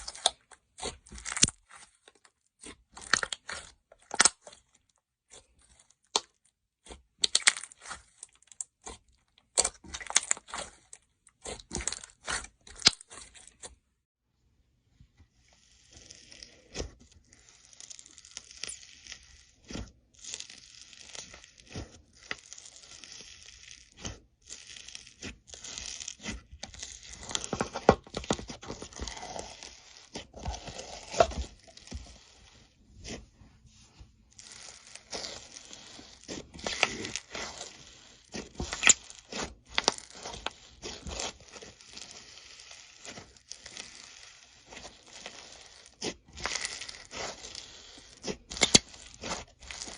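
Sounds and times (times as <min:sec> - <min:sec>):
slime crackling and tearing: 0:00.0 - 0:13.8, 0:15.5 - 0:33.2, 0:34.3 - 0:49.9.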